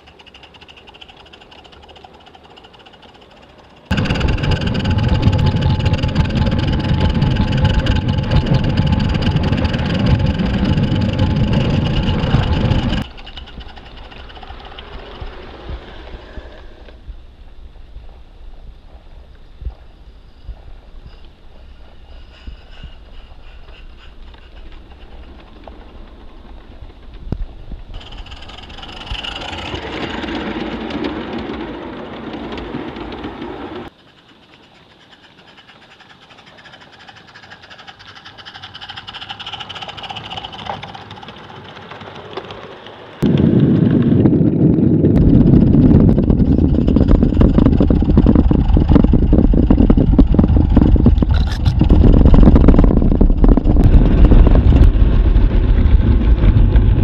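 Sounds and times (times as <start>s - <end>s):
model steam train running: 0.0s - 16.7s, 21.5s - 44.0s
dense rumble with clatter: 0.0s - 17.0s, 22.8s - 34.0s, 36.0s - 57.0s.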